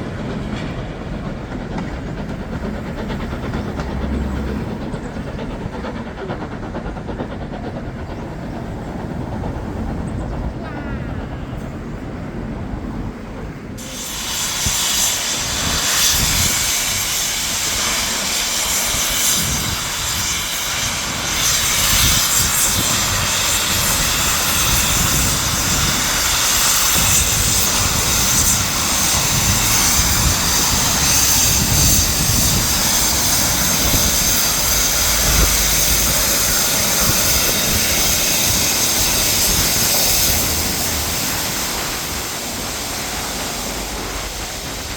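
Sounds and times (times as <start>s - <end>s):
steam locomotive chuffing: 0.0s - 44.9s
loud steam hiss: 13.8s - 44.9s.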